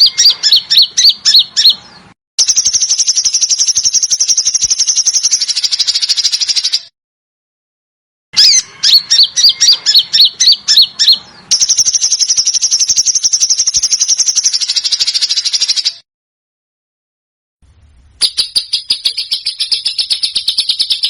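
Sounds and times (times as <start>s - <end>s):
bird whistled notes: 0.0s - 1.8s, 2.4s - 6.9s, 8.4s - 16.0s, 18.2s - 21.0s
songbird trill: 0.0s - 6.9s, 8.4s - 16.0s, 18.2s - 21.0s.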